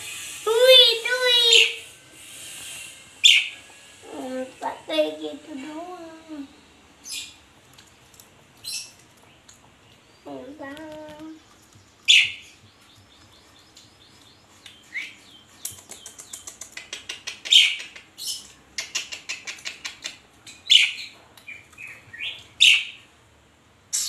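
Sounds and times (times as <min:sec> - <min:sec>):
starling harsh high calls: 0:00.0 - 0:05.0
starling clicking chatter: 0:15.6 - 0:18.1, 0:18.8 - 0:20.2.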